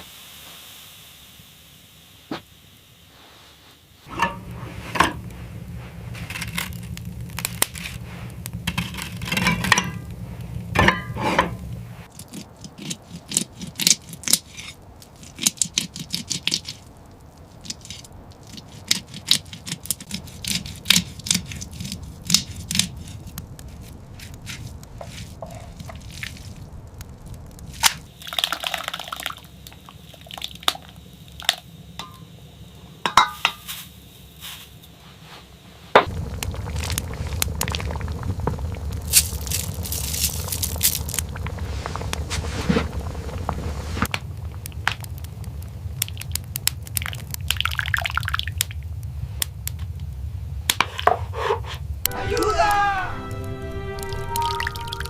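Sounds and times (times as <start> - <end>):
scraping and crunching: 3.3 - 28.2, 36.0 - 45.2
low steady hum: 4.0 - 12.6, 20.0 - 50.8
cups and utensils clinking: 4.1 - 5.3, 8.6 - 10.1, 10.8 - 11.6.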